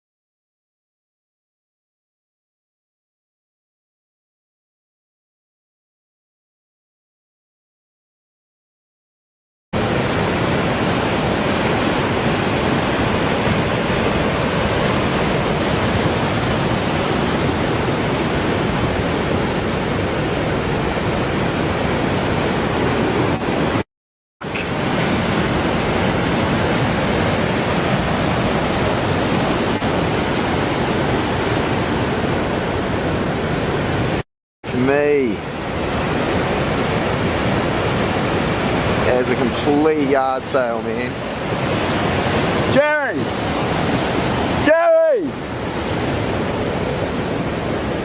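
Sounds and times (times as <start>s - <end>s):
waves breaking: 9.8s - 23.8s, 24.4s - 48.0s.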